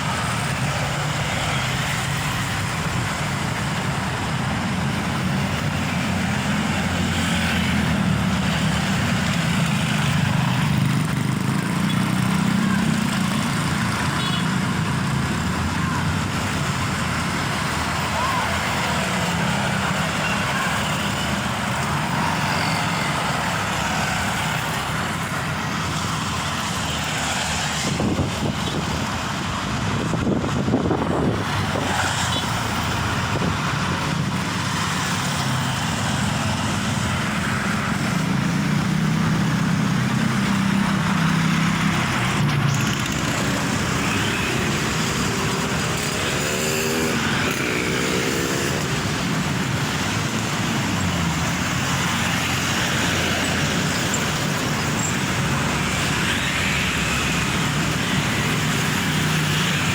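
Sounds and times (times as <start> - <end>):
road traffic passing: 0.0 - 59.9
truck diesel engine: 0.0 - 59.9.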